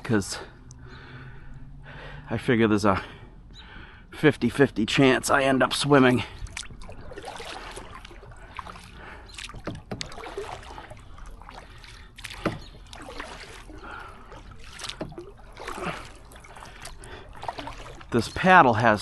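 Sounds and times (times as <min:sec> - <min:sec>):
water splashing and dripping: 0:05.2 - 0:19.0
paddle dipping into water: 0:05.7 - 0:19.0.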